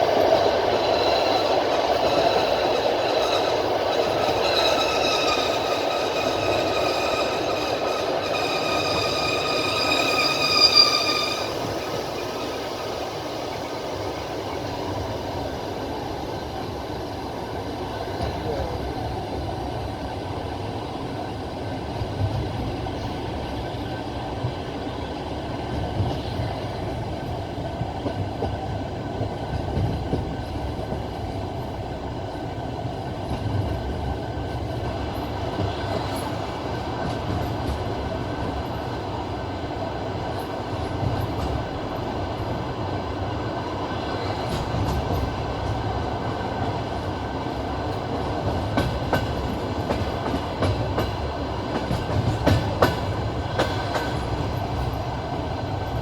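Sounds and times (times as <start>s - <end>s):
train wheels rumbling on rail: 0.0s - 56.0s
wheels clacking over rail joint: 43.9s - 56.0s.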